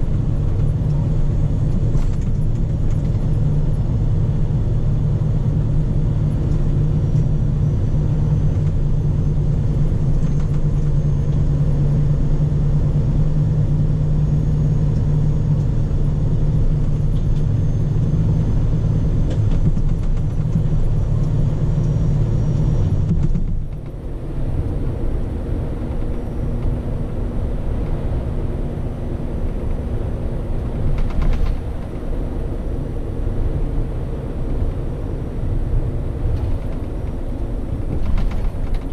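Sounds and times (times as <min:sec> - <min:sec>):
truck diesel engine running: 0:00.0 - 0:38.9.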